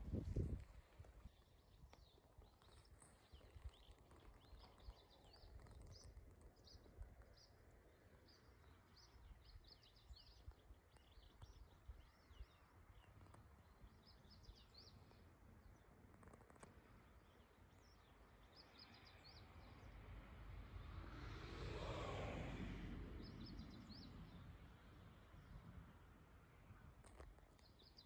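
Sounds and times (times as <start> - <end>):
wind rumble on microphone: 0.0 - 7.5, 20.6 - 26.2
small birds chirping: 1.1 - 19.9, 26.8 - 28.0.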